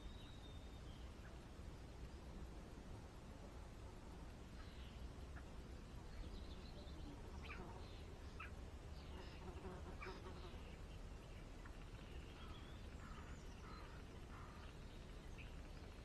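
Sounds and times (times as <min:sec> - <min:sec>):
small birds chirping: 0:04.3 - 0:16.0.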